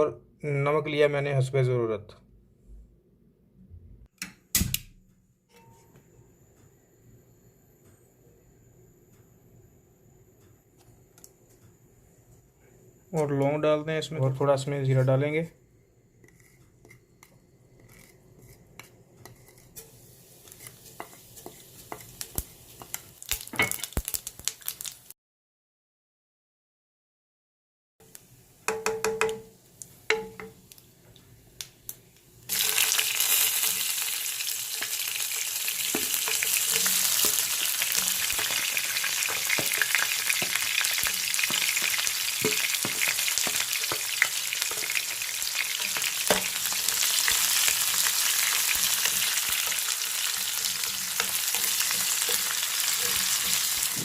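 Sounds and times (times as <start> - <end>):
onions sizzling in hot oil: 19.3 - 25.1, 32.4 - 54.0.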